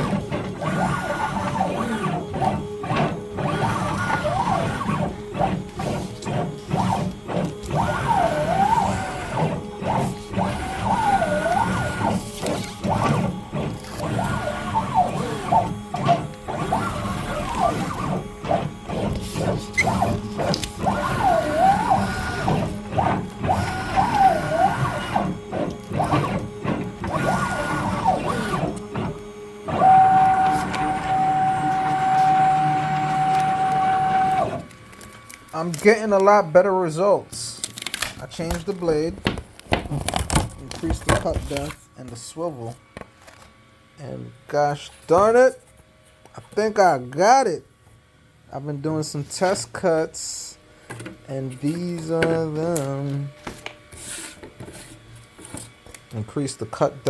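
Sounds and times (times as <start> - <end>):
stepper motors whining: 0.0 - 35.8.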